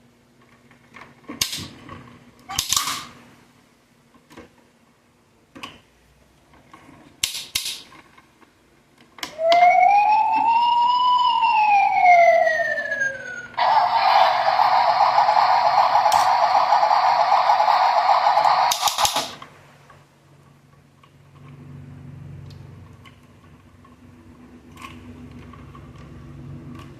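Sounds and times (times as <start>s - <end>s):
electronic siren wail: 9.3s - 19.0s
toy clicks: 13.6s - 19.4s.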